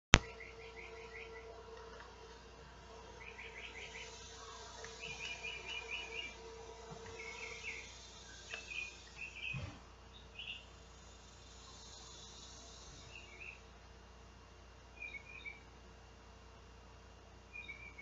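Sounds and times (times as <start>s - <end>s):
birds chirping: 0.1s - 13.9s, 14.8s - 15.8s, 17.4s - 18.0s
cicadas hissing: 0.3s - 13.8s.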